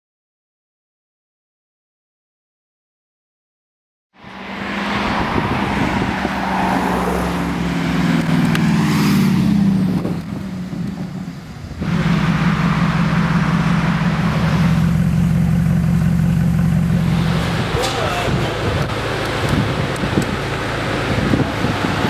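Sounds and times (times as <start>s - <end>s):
car engine running loud: 4.2s - 22.0s.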